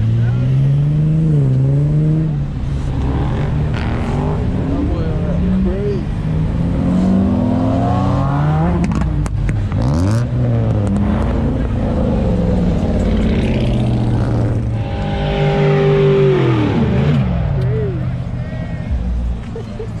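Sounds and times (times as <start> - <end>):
car engine revving hard: 6.3 - 18.2.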